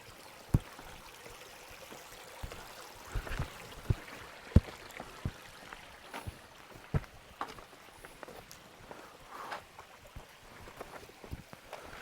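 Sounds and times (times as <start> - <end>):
steady outdoor hiss: 0.0 - 12.0
footsteps on rock: 2.4 - 12.0.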